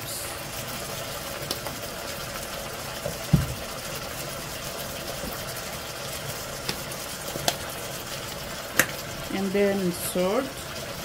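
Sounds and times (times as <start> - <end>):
food sizzling in a pot: 0.0 - 11.0
soft thump: 3.3 - 3.6.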